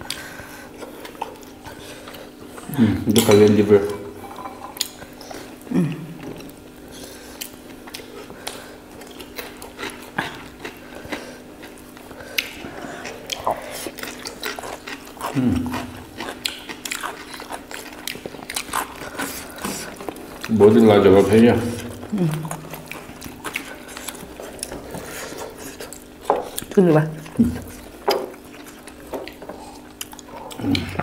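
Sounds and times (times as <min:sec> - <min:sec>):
faint steady hum: 0:00.0 - 0:31.0
people chewing food: 0:00.0 - 0:31.0
short low voice hum: 0:05.7 - 0:06.2, 0:15.3 - 0:15.9.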